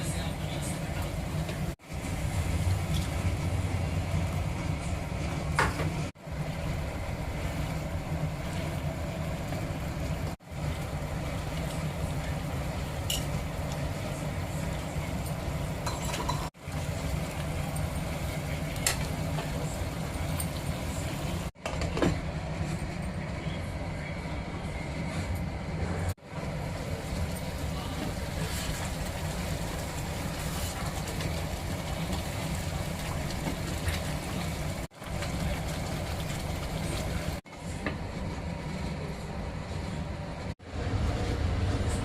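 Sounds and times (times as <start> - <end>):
low kitchen hum: 0.0 - 42.0
metal utensils clinking: 15.2 - 16.5.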